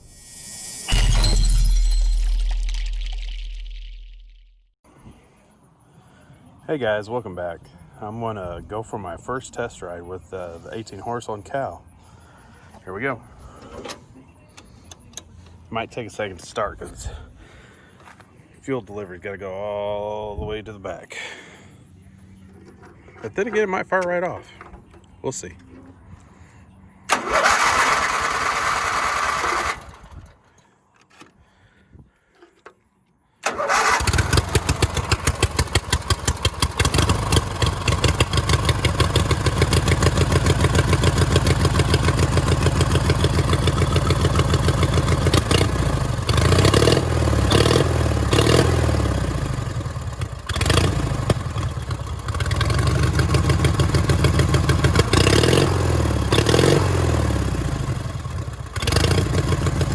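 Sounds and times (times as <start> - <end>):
mower engine running: 22.3 - 26.0, 27.1 - 31.3, 33.4 - 59.9
starter cranking: 27.1 - 31.4, 33.4 - 46.8.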